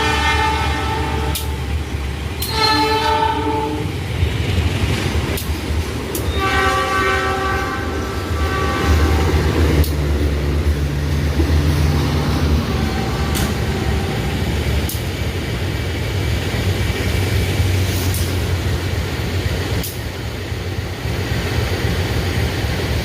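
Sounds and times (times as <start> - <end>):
locomotive horn blasts: 0.0 - 1.8, 2.4 - 3.9, 6.2 - 9.5, 12.6 - 14.3
train rumbling: 0.0 - 23.0
sharp clicks: 5.3 - 6.3, 9.8 - 10.1.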